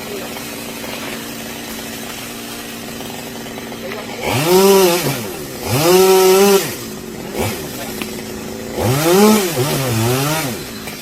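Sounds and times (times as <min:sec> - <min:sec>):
chainsaw engine idling and revving: 0:00.0 - 0:11.0.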